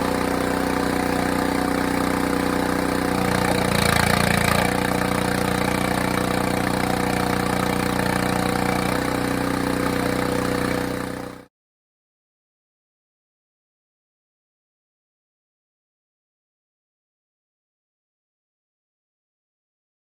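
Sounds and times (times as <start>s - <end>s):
small gas engine running: 0.0s - 11.5s.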